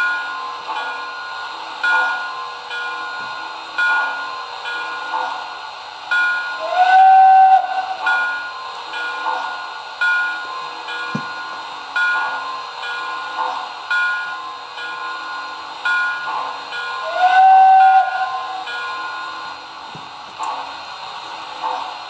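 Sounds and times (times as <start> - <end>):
steady steam hiss: 0.0 - 22.0
locomotive whistle: 6.6 - 8.1, 17.0 - 18.6.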